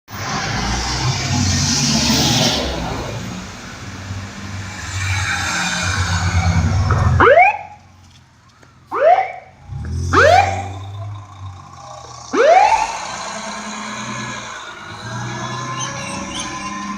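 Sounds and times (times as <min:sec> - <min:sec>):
fire engine pulling away: 0:08.8 - 0:16.9
siren rising whoop: 0:09.0 - 0:11.1, 0:12.2 - 0:16.9.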